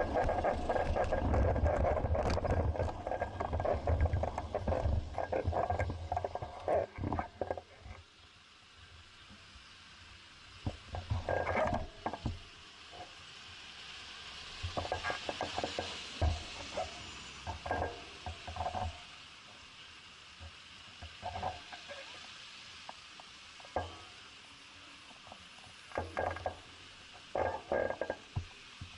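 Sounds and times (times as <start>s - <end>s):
bicycle rattling over bumps: 0.0s - 7.8s
steady hiss: 0.0s - 28.9s.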